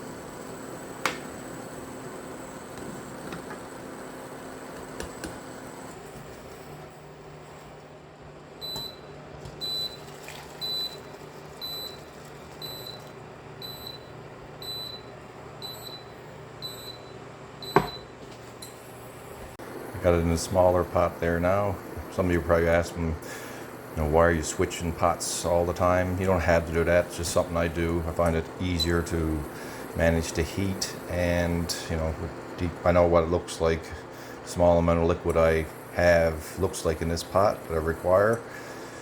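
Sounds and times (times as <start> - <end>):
short high appliance beeps: 8.6 - 18.8
steady low hum: 11.5 - 39.0.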